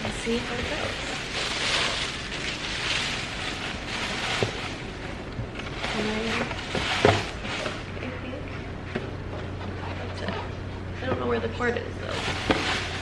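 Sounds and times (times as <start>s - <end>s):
packaging rustling: 0.2s - 7.9s.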